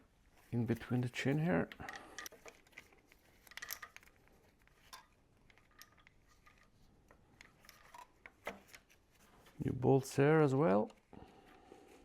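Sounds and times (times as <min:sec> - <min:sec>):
metallic chain clicks: 0:03.4 - 0:04.1, 0:04.9 - 0:06.2.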